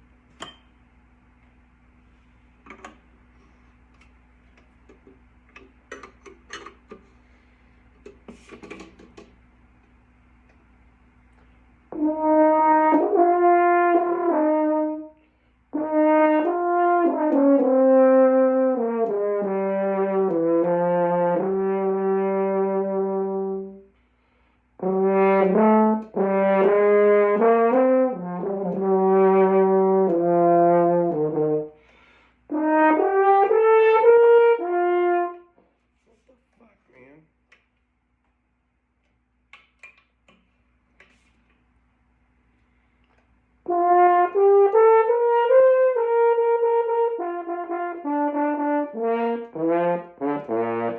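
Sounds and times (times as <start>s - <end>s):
brass instrument warm-up: 11.4s - 36.3s, 42.5s - 50.9s.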